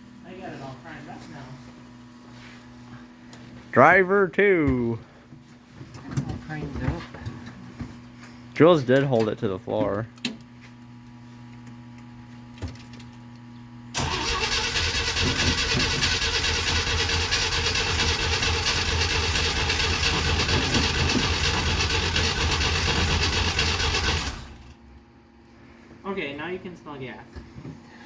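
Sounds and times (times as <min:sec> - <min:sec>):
engine cranking on starter: 0:13.9 - 0:24.8
car engine running: 0:14.0 - 0:24.8.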